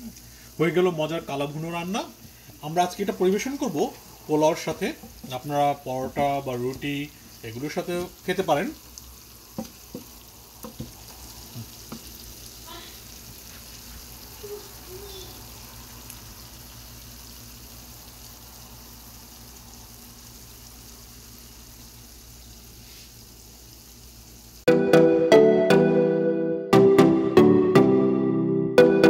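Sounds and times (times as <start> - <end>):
meat sizzling in a pan: 0.0 - 24.7
wooden spatula knocking pan: 4.9 - 6.8, 9.5 - 12.1
music: 24.7 - 29.0.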